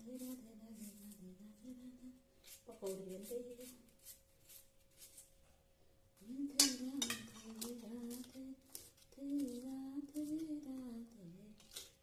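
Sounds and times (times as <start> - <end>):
kitchen utensils clinking: 6.6 - 7.8.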